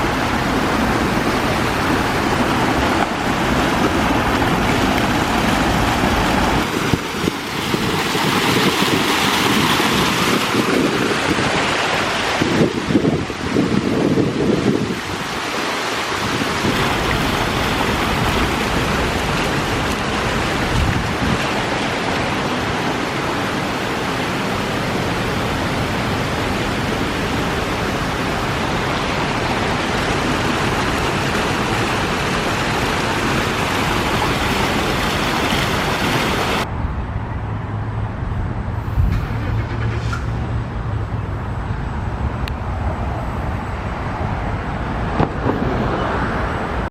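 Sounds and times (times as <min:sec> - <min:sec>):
water rushing down waterfall: 0:00.0 - 0:36.7
low hum of distant traffic: 0:15.0 - 0:46.9.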